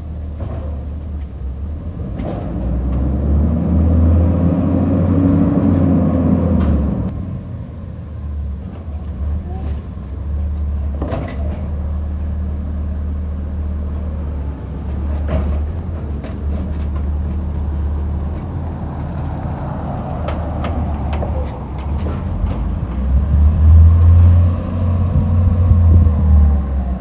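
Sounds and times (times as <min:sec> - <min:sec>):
garbage truck engine rumbling: 0:00.0 - 0:27.0
metal knocks and clanks: 0:14.8 - 0:23.5.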